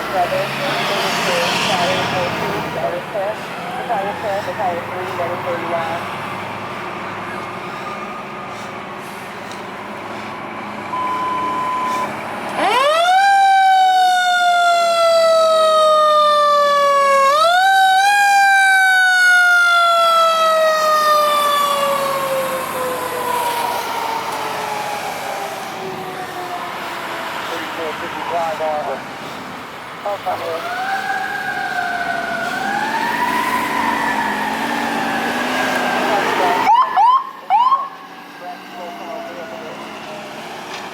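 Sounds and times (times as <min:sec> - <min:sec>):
passing traffic: 0:00.0 - 0:40.9
mechanical siren wailing: 0:12.6 - 0:27.0, 0:30.2 - 0:38.0.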